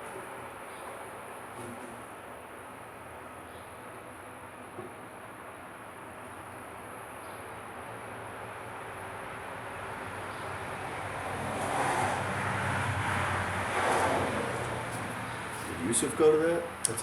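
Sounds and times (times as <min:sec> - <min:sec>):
vehicle engine and road noise: 0:07.7 - 0:17.0.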